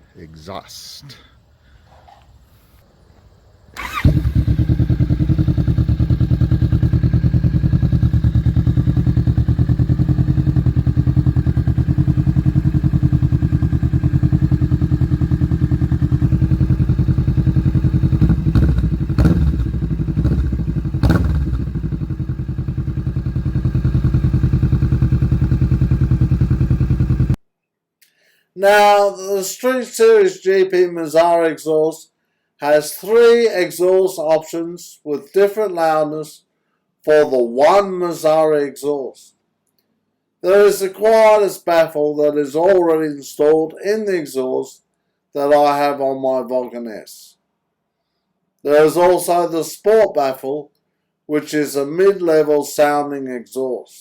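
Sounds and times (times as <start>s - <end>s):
motorcycle engine running: 3.8s - 27.4s.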